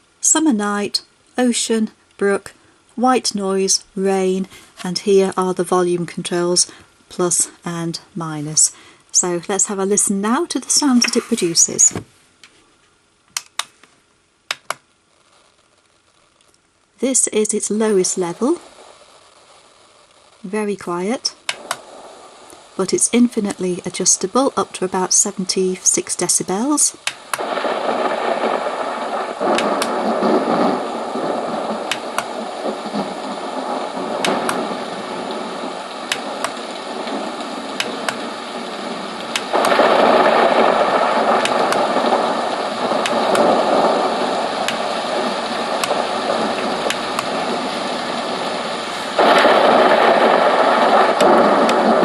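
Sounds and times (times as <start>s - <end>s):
recorded thunder rumble from speaker: 21.1s - 52.0s.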